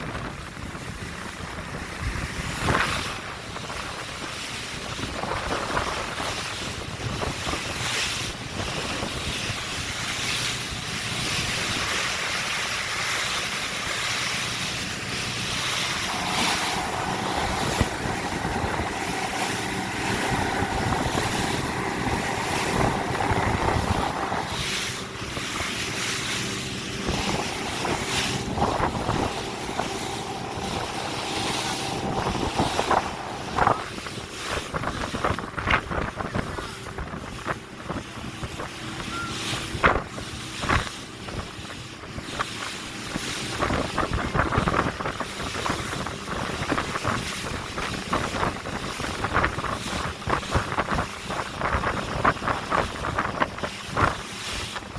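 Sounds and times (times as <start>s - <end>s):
rushing water: 0.0s - 54.9s
wind buffeting microphone: 0.0s - 54.9s.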